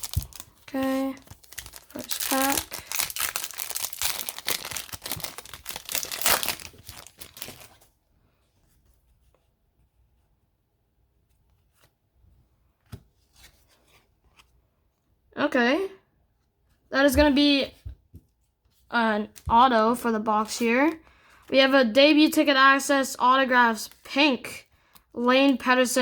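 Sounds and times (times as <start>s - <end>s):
wrapper tearing and crinkling: 0.0s - 7.8s.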